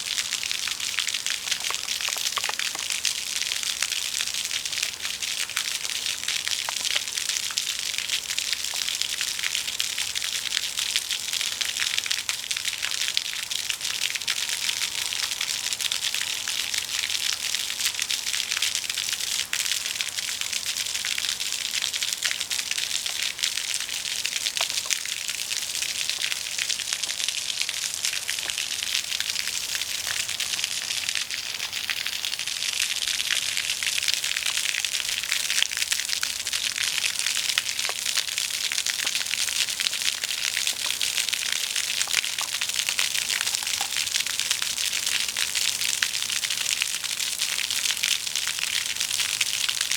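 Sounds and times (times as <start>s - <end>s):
floodwater rushing: 39.7s - 44.2s.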